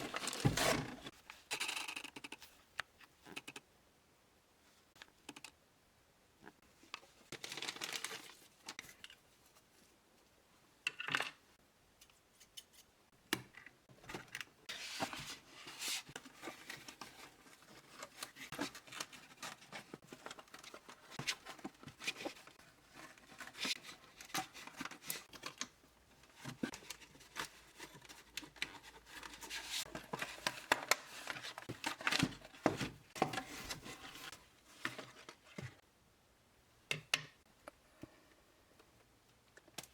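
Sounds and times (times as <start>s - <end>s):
tearing cardboard and plastic: 0.0s - 1.1s.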